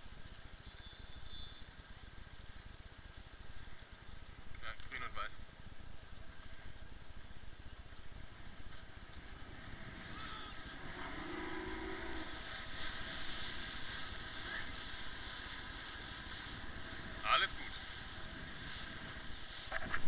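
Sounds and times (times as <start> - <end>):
wind: 0.0 - 20.0
motorboat engine running: 5.1 - 20.0
rushing water: 8.2 - 20.0.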